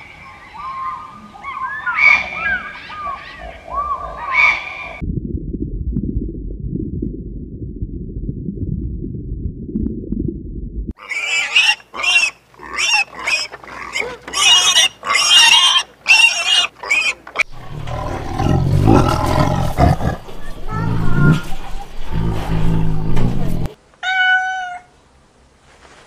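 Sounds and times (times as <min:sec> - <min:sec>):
low growling rumble: 0:05.0 - 0:10.9, 0:17.4 - 0:23.8
low underwater rumble: 0:05.0 - 0:10.9, 0:20.2 - 0:23.7
pig squealing and grunting: 0:11.0 - 0:23.2.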